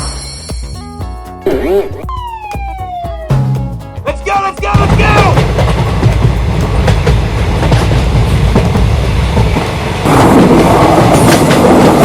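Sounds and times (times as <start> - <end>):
train rumbling on rails: 4.3 - 12.0
wheels clattering over rail joints: 4.8 - 12.0.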